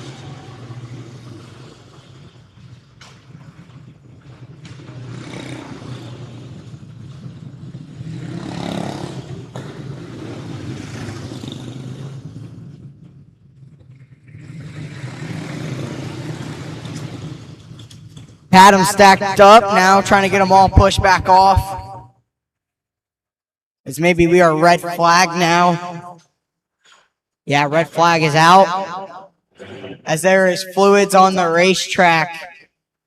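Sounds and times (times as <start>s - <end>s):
racing kart engines: 0.0s - 20.6s.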